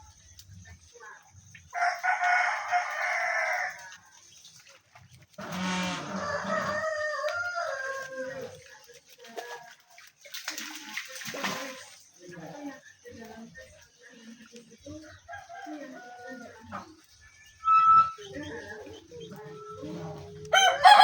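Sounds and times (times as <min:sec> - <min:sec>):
rooster crowing: 0:01.8 - 0:03.8, 0:05.5 - 0:08.3, 0:20.5 - 0:21.0.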